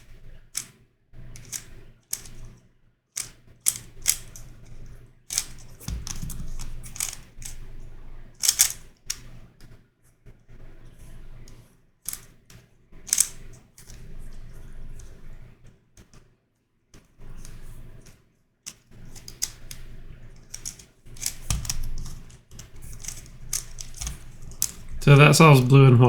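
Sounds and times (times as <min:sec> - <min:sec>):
plastic puzzle clicking: 0:01.4 - 0:02.4, 0:03.2 - 0:04.5, 0:05.3 - 0:07.6, 0:08.4 - 0:09.2, 0:12.1 - 0:12.3, 0:13.1 - 0:14.0, 0:18.7 - 0:19.8, 0:20.4 - 0:25.0.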